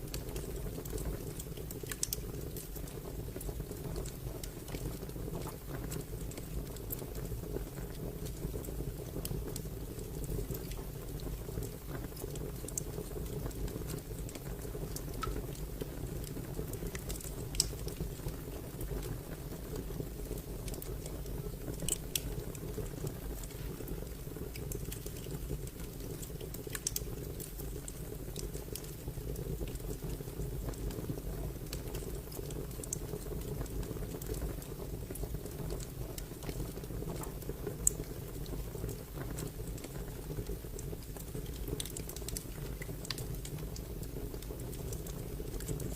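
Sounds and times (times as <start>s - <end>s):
wood fire crackling: 0.0s - 45.9s.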